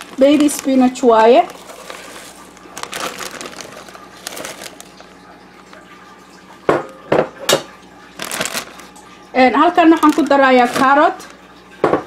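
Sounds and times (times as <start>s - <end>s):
spinach leaves rustling in plastic bag: 0.0s - 5.8s, 8.2s - 11.4s.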